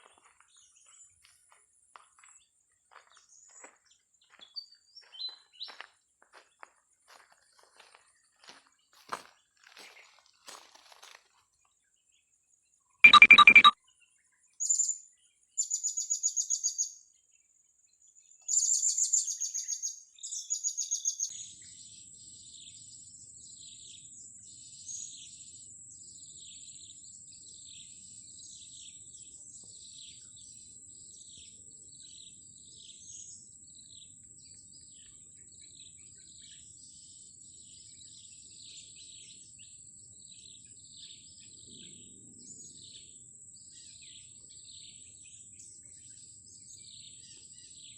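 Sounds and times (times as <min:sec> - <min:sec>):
bird chirps: 0:13.1 - 0:15.0.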